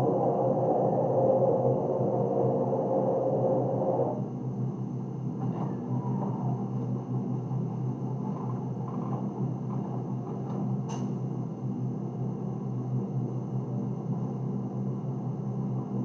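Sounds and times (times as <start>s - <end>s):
washing machine humming: 0.0s - 4.9s.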